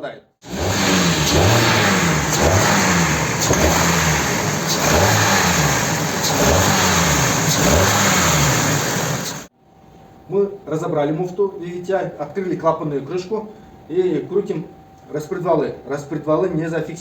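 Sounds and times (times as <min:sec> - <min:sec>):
car engine revving: 0:00.4 - 0:09.5.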